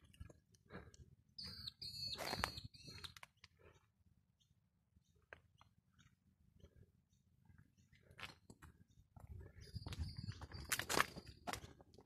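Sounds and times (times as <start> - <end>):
high whistled bird calls: 1.4 - 3.2.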